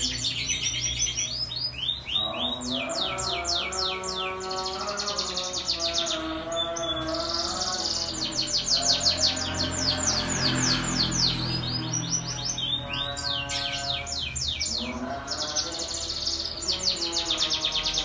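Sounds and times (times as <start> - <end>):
canary singing trills: 0.0 - 18.0.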